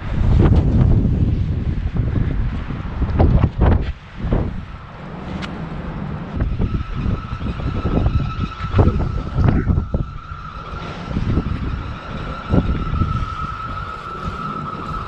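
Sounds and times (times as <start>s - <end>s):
gusty wind buffeting microphone: 0.0s - 15.0s
thin steady high tone: 6.4s - 15.0s.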